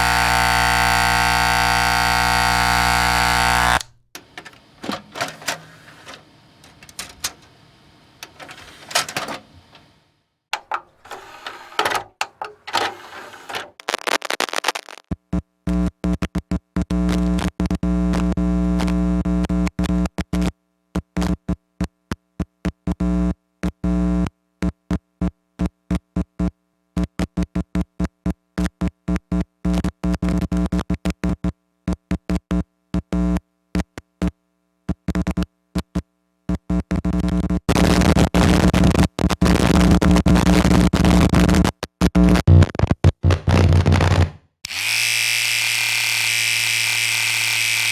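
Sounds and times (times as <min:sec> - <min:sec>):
glitchy electronic buzzing tones: 0:00.0 - 0:05.3, 0:13.4 - 0:15.0.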